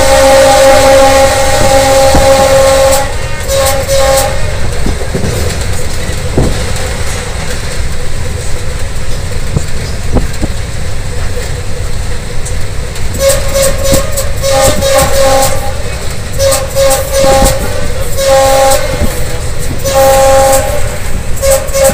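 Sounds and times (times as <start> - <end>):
train horn blasts: 0.0 - 4.9, 13.1 - 21.9
train rumbling along track: 0.0 - 21.9
wheels clacking over rail joints: 0.0 - 21.9.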